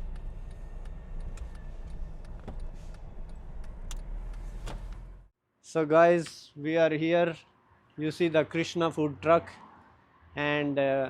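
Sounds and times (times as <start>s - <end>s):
road rumble inside car: 0.0s - 5.3s.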